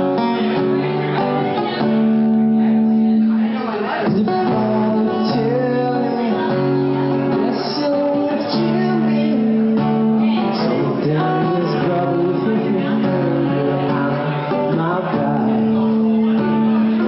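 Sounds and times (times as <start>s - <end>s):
acoustic guitar: 0.0s - 17.0s
person singing: 4.0s - 17.0s.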